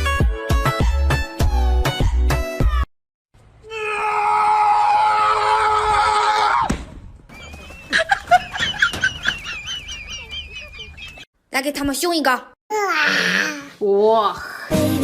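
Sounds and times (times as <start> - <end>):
music: 0.0 - 2.9, 14.7 - 15.0
loud high scream: 3.7 - 6.7.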